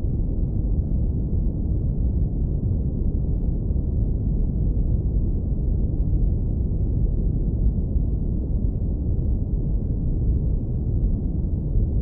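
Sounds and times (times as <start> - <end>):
deep brown noise rumble: 0.0 - 12.0.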